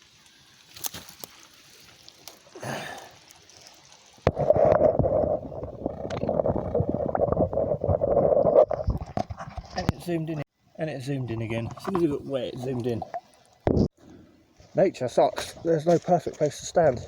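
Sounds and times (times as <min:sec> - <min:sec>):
underwater stream gurgling: 0:01.5 - 0:09.8, 0:11.2 - 0:13.9.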